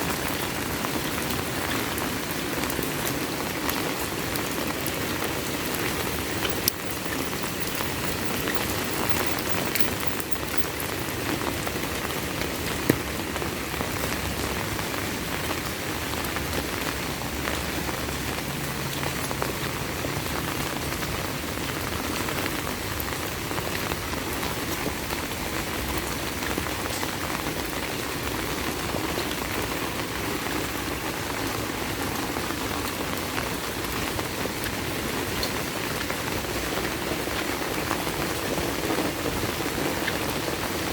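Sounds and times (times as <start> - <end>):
heavy rain falling: 0.0 - 40.9
single raindrop ticks: 5.7 - 11.2.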